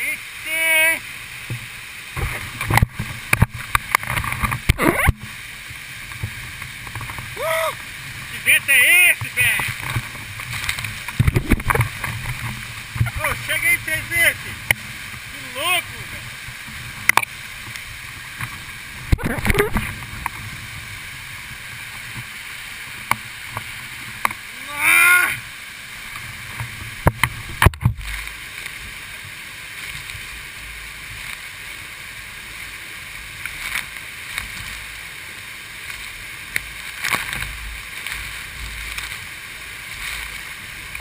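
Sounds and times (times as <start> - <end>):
waterfall rushing: 0.0 - 41.0
wind buffeting microphone: 9.4 - 13.4.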